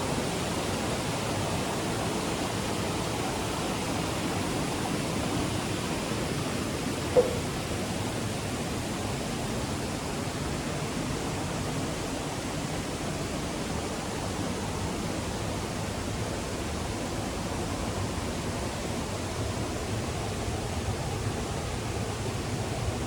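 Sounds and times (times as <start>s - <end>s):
running water rushing: 2.5s - 9.8s.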